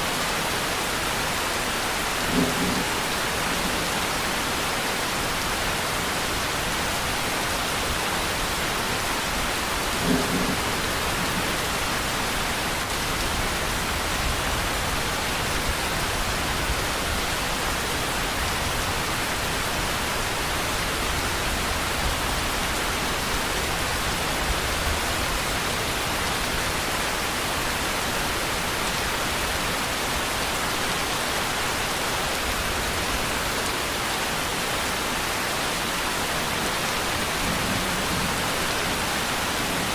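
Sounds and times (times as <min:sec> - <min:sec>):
heavy rain hissing: 0:00.0 - 0:39.9
distant thunder rumbling: 0:02.2 - 0:04.5, 0:09.3 - 0:12.6.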